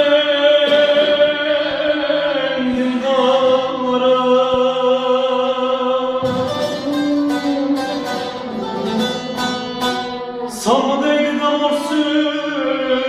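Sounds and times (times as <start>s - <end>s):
person singing a long note: 0.0s - 9.6s
plucked strings: 6.2s - 10.7s.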